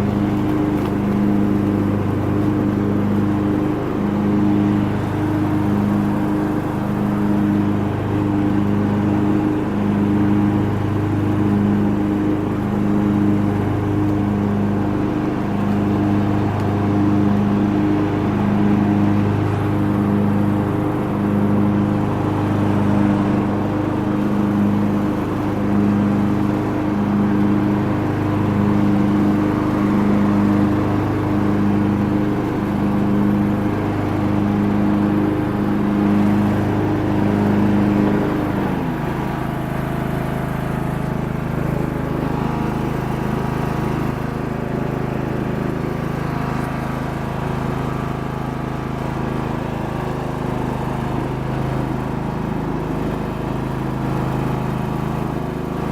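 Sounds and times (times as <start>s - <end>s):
lawn tractor engine running: 0.0s - 55.9s.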